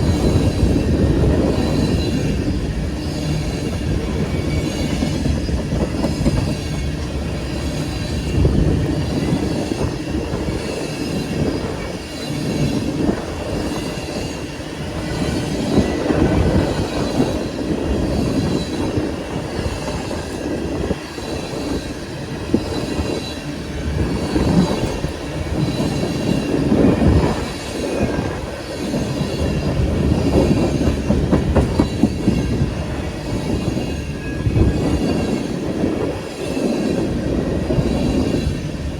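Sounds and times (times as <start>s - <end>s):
freight train rumbling: 0.0s - 38.9s
faint high wheel squeal: 0.1s - 13.0s.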